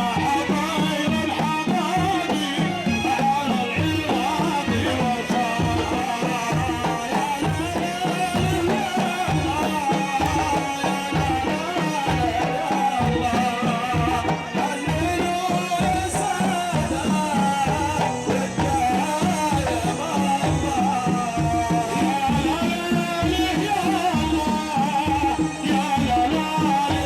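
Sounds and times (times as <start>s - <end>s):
drums beating steady rhythm: 0.0s - 27.0s.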